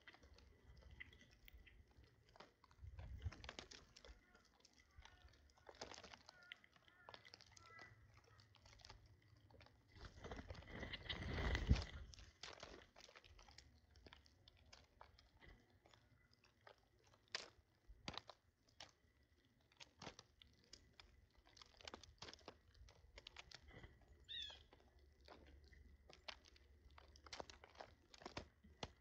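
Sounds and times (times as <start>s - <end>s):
birds cracking seed: 0.0s - 29.0s
rustling: 9.9s - 15.6s
bird chirp: 24.2s - 24.7s.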